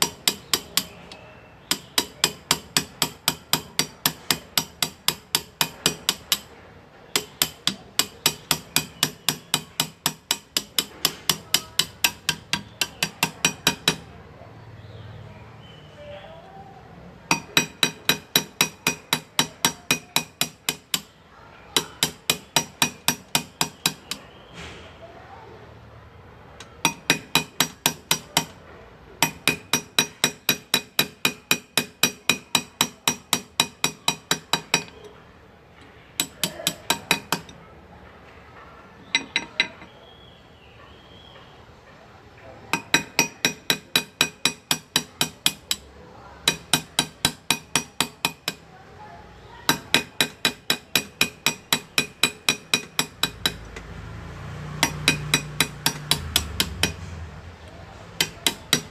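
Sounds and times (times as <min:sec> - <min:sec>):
hammer tapping steel graver on metal: 0:00.0 - 0:14.1, 0:17.3 - 0:24.3, 0:26.6 - 0:28.6, 0:29.2 - 0:35.2, 0:35.8 - 0:37.6, 0:39.0 - 0:39.9, 0:42.7 - 0:48.7, 0:49.6 - 0:54.0, 0:54.6 - 0:58.9.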